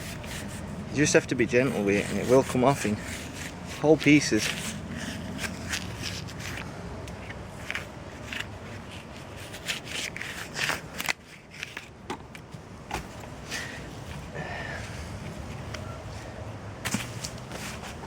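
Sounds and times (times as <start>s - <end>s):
bark being peeled by hand: 0.0s - 13.8s.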